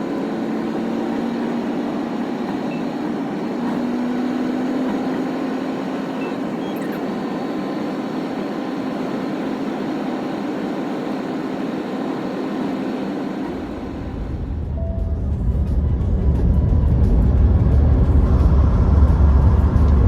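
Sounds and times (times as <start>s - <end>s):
truck engine and road noise: 0.0s - 20.0s
deep low rumble: 14.3s - 20.0s.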